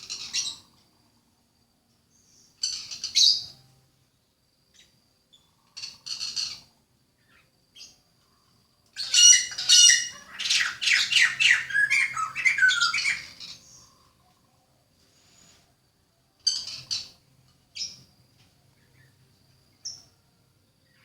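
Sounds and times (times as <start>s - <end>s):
songbird harsh call: 0.0s - 0.9s, 4.7s - 8.0s, 9.0s - 14.6s
songbird rapid song: 0.0s - 21.0s.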